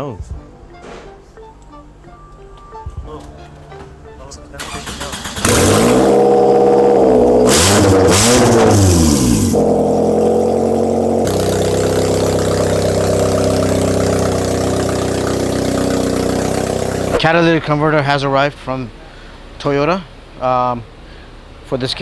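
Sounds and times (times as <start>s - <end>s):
car engine revving and idling: 4.6s - 17.2s.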